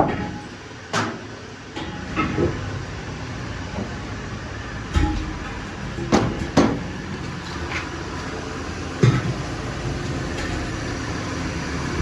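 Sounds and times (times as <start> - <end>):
workshop background hum: 0.0 - 12.0
sharp knocks: 4.9 - 9.5.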